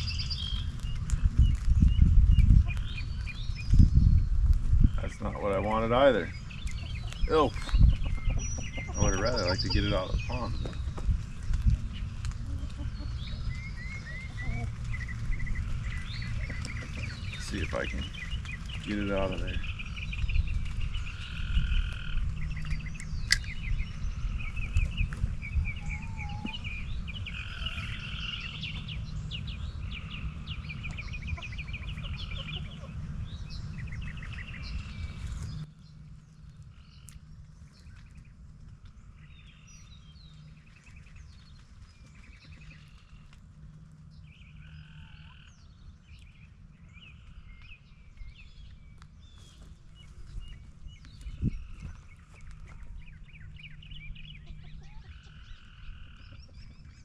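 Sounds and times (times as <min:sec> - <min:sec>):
birds chirping: 0:00.0 - 0:57.0
low rumble: 0:00.0 - 0:57.0
frogs calling in trills: 0:25.8 - 0:28.8.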